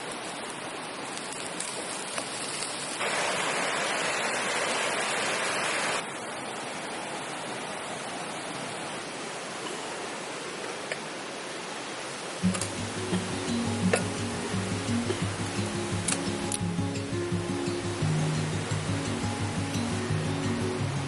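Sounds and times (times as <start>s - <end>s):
steady rushing noise: 12.0s - 21.0s.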